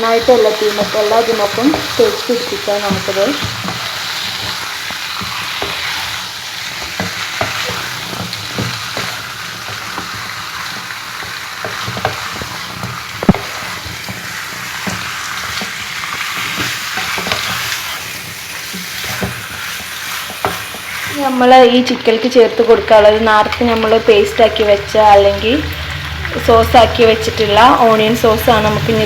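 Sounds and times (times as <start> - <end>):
spoon scraping and knocking pan: 0.0 - 21.2
chicken sizzling in hot oil: 0.0 - 29.0.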